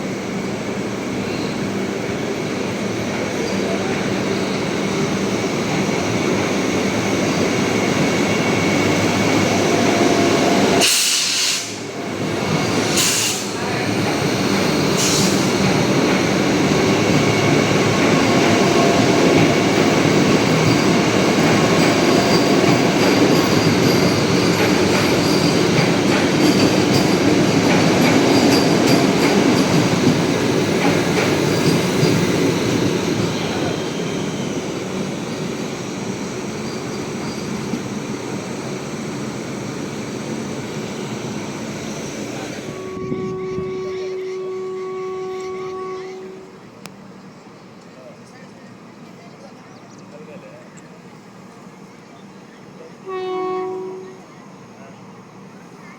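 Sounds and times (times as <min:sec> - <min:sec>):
train wheels rumbling on rails: 0:00.0 - 0:55.9
faint high wheel squeal: 0:40.4 - 0:48.8.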